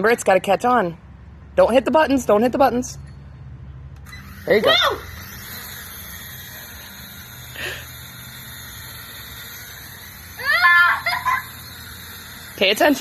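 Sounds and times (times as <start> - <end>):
high rising cry: 4.0 - 13.0
toy drone whirring: 4.0 - 13.0.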